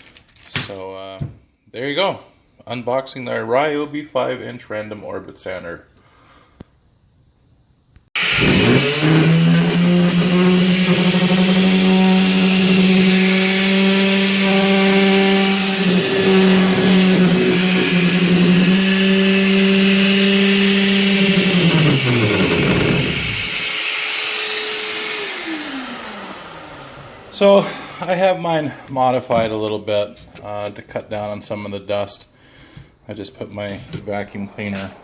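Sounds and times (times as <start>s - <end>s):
orbital sander motor running: 8.2s - 27.3s.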